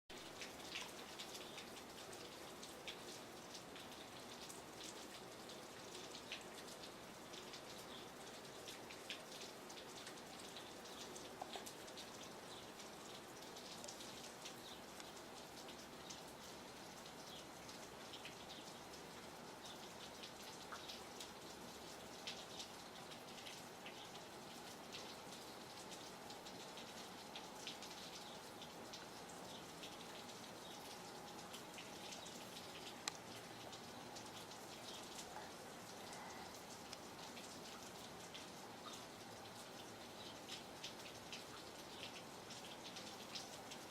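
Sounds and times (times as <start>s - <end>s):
light rain falling: 0.1s - 43.9s.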